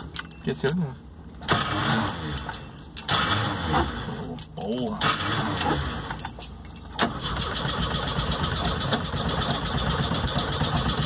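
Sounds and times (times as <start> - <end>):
keys jangling: 0.0 - 0.8, 2.0 - 7.1
car engine cranking: 0.0 - 11.0.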